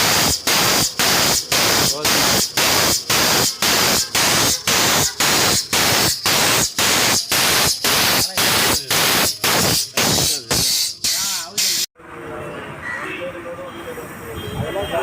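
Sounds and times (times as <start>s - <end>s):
pulsing loud hiss: 0.0s - 11.9s.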